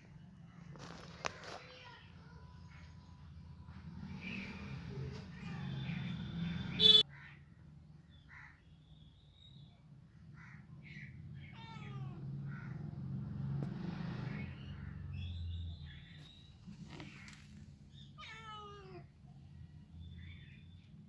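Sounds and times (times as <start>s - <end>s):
cat meowing: 11.4s - 12.8s, 18.0s - 19.2s.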